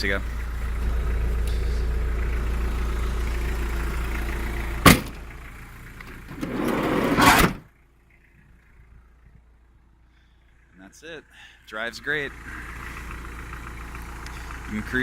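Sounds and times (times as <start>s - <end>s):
low engine rumble: 0.0s - 15.0s
thump: 4.8s - 5.2s.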